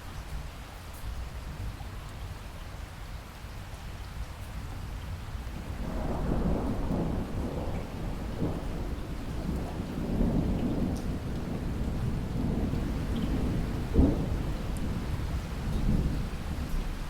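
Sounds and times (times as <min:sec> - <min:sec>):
rain downpour: 0:00.0 - 0:17.0
thunder rumbling: 0:05.6 - 0:16.8.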